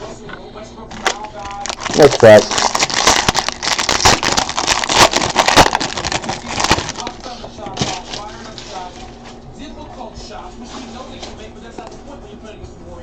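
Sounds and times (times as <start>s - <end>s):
foil card pack crinkling: 0.9s - 9.2s.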